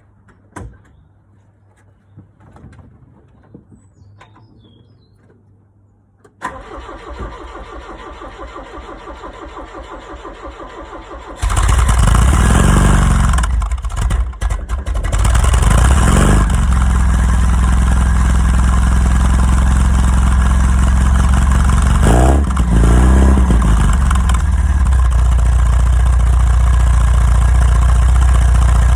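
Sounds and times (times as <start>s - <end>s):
car engine idling: 10.5s - 28.9s
engine revving: 11.3s - 28.9s.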